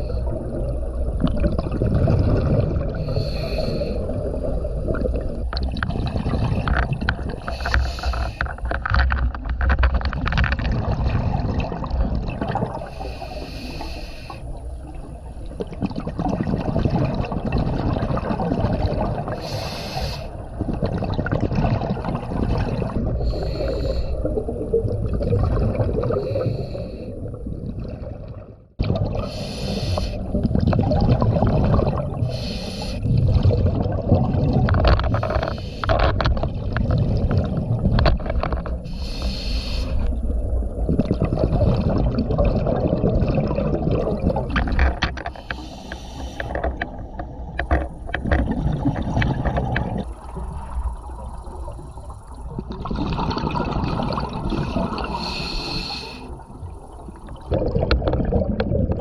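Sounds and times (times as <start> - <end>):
exhaled air bubbling: 0.0 - 59.0
low rumble of water: 0.0 - 59.0
regulator inhalation hiss: 3.0 - 4.1, 7.4 - 8.6, 12.9 - 14.4, 19.4 - 20.4, 23.3 - 24.3, 29.2 - 30.2, 32.3 - 33.0, 35.2 - 35.9, 38.9 - 40.1, 45.3 - 46.6, 55.0 - 56.5.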